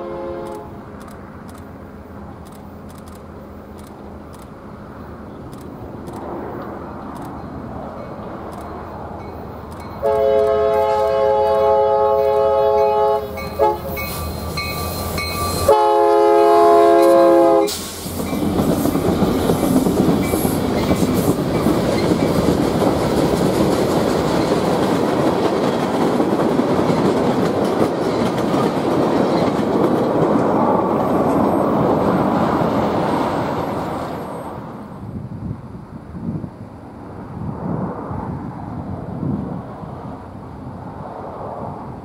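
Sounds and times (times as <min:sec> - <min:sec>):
locomotive horn blast: 0:00.0 - 0:00.8, 0:10.0 - 0:18.0
train wheels on rail: 0:00.0 - 0:42.0.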